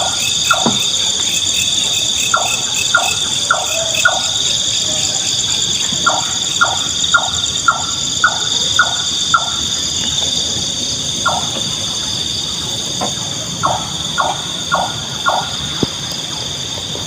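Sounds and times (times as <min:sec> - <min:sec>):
nightjar calling repeated notes: 0:00.0 - 0:09.8, 0:11.2 - 0:11.7, 0:13.6 - 0:15.8
high-pitched insect chorus: 0:00.0 - 0:17.0.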